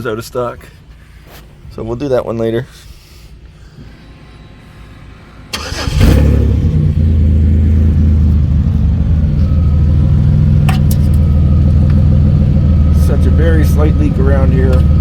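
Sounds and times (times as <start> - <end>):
car engine starter cranking: 5.5 - 7.3
car engine idling: 5.5 - 15.0.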